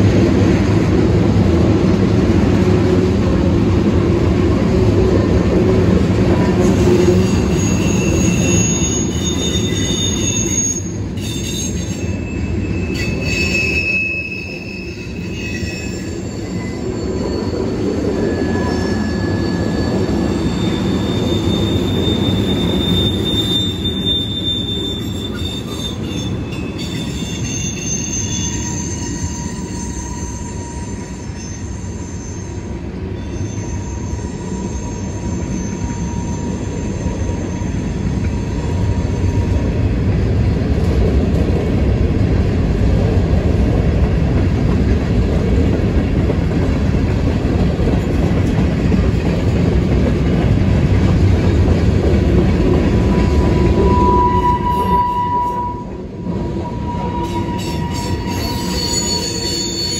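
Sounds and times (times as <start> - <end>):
steel wheels rumbling on rails: 0.0 - 59.9
high-pitched wheel squeal: 6.7 - 32.6, 33.2 - 39.6, 53.0 - 59.9.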